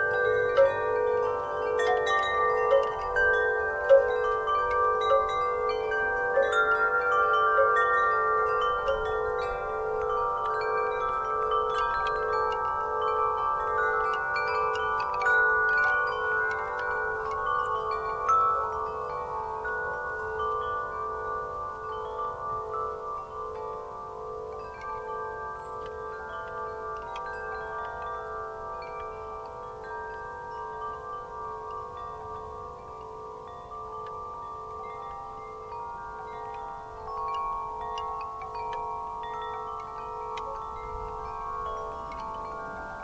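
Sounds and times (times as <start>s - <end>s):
wind chimes ringing: 0.0s - 43.0s.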